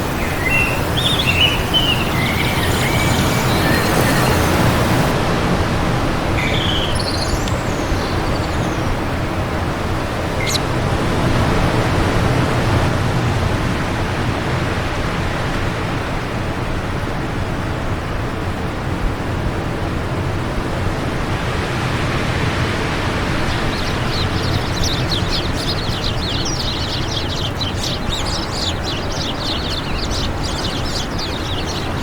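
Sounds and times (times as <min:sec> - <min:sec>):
bird chirps: 0:00.0 - 0:05.1, 0:06.4 - 0:09.5, 0:10.3 - 0:10.6, 0:23.3 - 0:32.0
wind rushing: 0:00.0 - 0:10.4.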